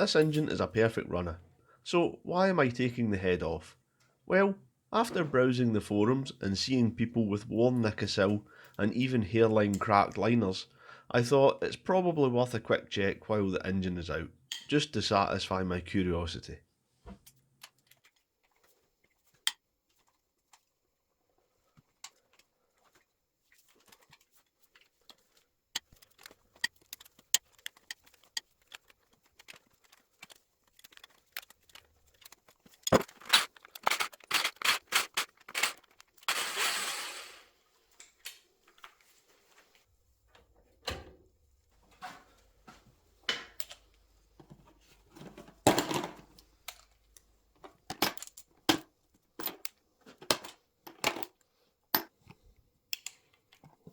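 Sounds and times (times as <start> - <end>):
metal tools clinking: 25.8 - 37.4.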